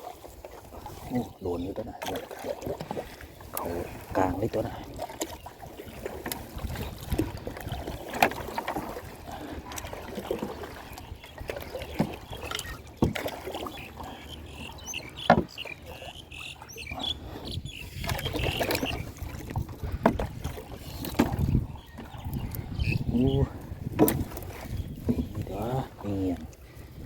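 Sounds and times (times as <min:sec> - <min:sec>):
water sloshing and splashing: 0:00.0 - 0:27.0.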